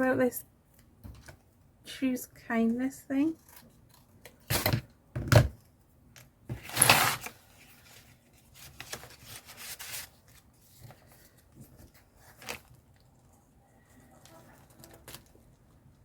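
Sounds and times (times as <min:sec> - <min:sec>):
paper rustling and tearing: 0:06.5 - 0:12.8.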